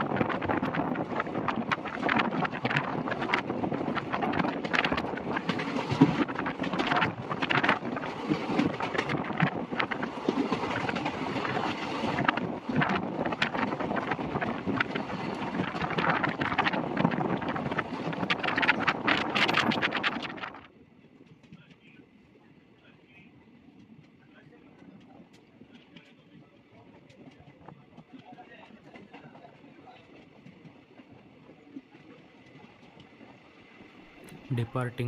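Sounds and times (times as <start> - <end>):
wind buffeting microphone: 0.0 - 20.7
train wheels rumbling on rails: 0.0 - 22.0, 23.6 - 34.4.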